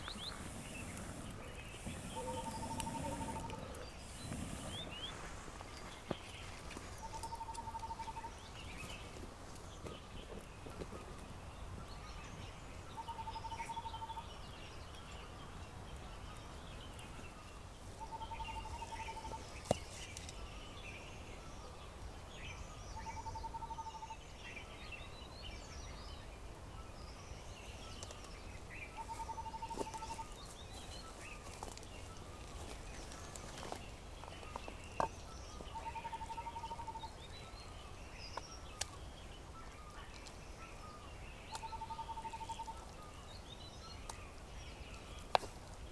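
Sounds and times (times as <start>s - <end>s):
birds chirping: 0.0s - 10.8s, 27.4s - 45.9s
low pulsed bird trill: 1.8s - 5.1s.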